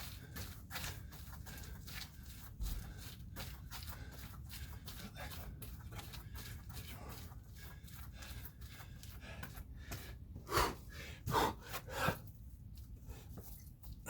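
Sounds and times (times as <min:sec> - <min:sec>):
man gasping for breath: 0:06.9 - 0:12.3.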